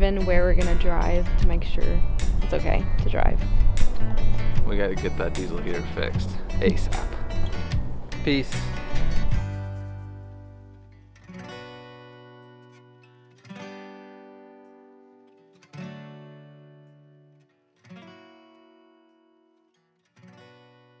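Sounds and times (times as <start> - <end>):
acoustic guitar strummed chords: 0.0 - 21.0.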